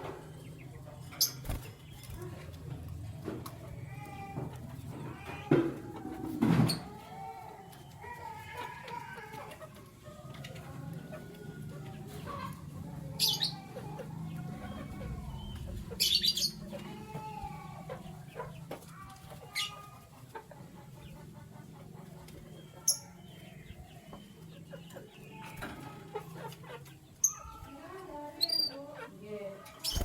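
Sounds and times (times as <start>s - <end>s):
wings flapping: 1.2s - 2.2s
canaries chirping: 6.5s - 30.0s.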